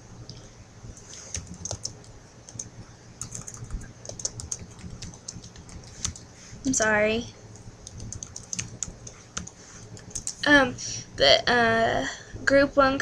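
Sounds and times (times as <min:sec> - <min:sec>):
computer keyboard typing: 0:01.0 - 0:06.3, 0:07.8 - 0:10.5.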